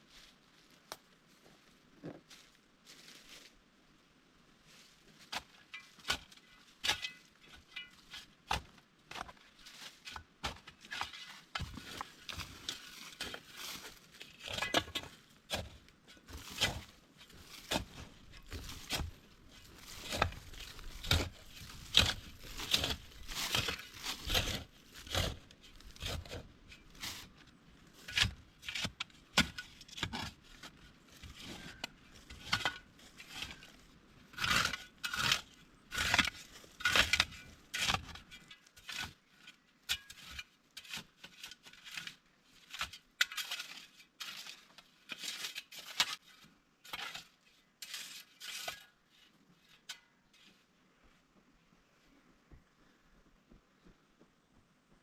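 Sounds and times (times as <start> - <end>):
hand tool digging into soil: 5.2 - 50.5.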